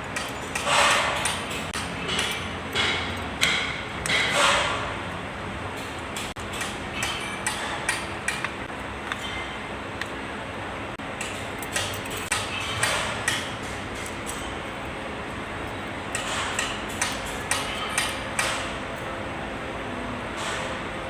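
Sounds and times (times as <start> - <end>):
metal tools clinking: 0.0 - 3.4, 11.2 - 19.1
steady background hum: 0.0 - 21.0.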